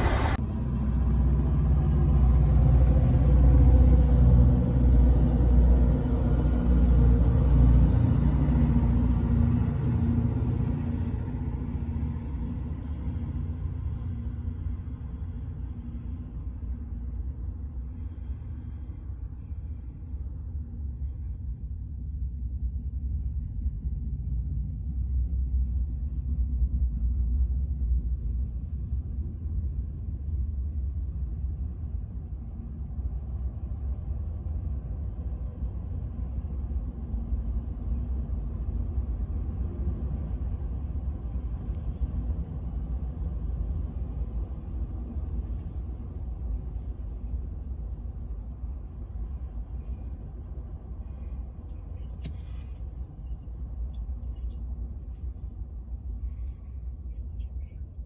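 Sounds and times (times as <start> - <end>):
freight train wheels rumbling: 0.0 - 22.2.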